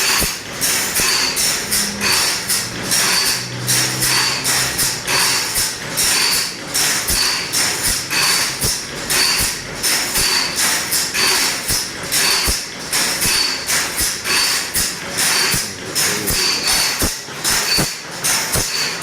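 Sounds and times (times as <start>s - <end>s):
metal file rasping on saw teeth: 0.1s - 7.6s, 14.3s - 17.9s.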